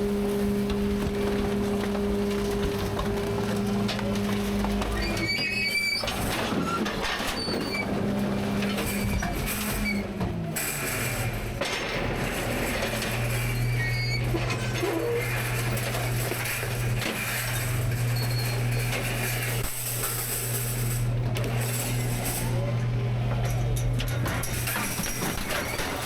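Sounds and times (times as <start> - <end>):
garbage truck engine and pump hum: 0.0 - 26.0
mechanical clatter: 23.4 - 26.0.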